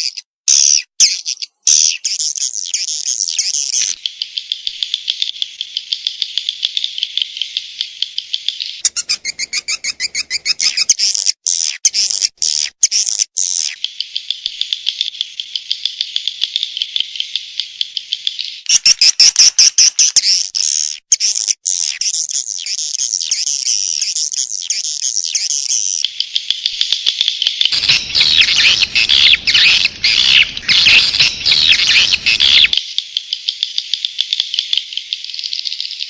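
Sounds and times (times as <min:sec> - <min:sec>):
swiftlet twittering chirps: 0:00.8 - 0:11.2, 0:27.7 - 0:34.1.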